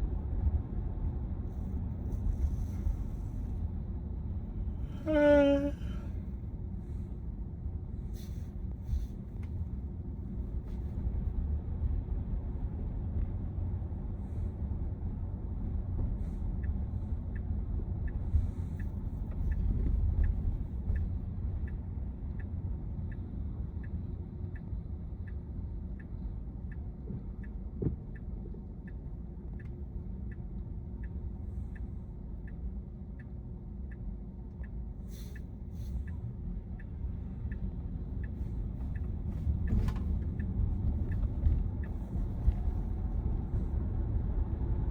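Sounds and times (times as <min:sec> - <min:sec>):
road and drivetrain rumble in car: 0:00.0 - 0:44.9
turn signal clicking: 0:26.0 - 0:30.4, 0:31.0 - 0:42.8.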